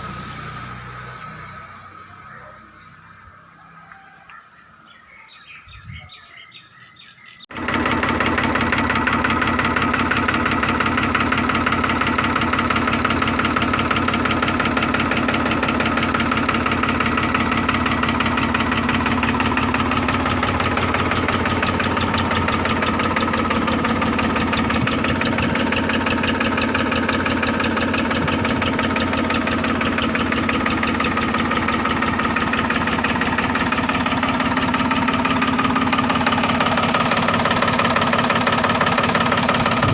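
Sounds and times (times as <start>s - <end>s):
tractor diesel engine idling: 0.0s - 3.6s, 5.3s - 39.9s
faint birdsong: 1.6s - 7.5s.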